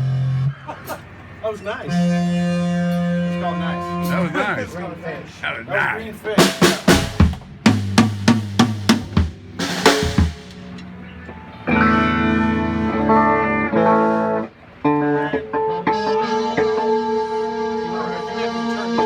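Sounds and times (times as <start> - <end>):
tom and snare drum hits: 6.4 - 10.8
guitar chord ringing: 9.2 - 19.0.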